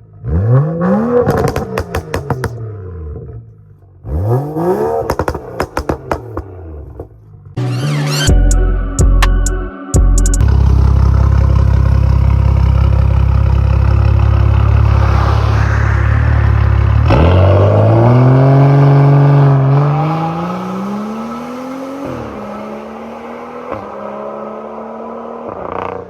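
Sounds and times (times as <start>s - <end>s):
car exhaust drone accelerating: 10.4s - 21.2s.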